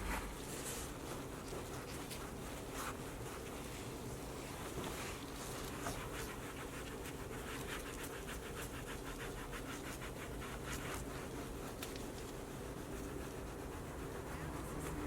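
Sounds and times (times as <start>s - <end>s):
brush scrubbing: 0.0s - 3.8s, 4.4s - 15.0s
steady low hum: 0.0s - 7.5s.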